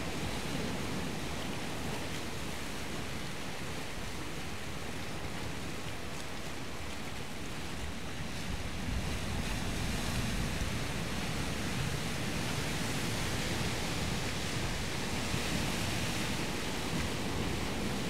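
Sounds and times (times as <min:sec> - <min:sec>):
sea surf breaking: 0:08.6 - 0:18.0.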